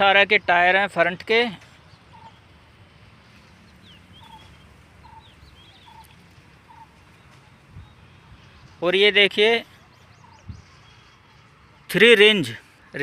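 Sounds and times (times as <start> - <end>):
faint bird chirps: 1.7 - 11.9.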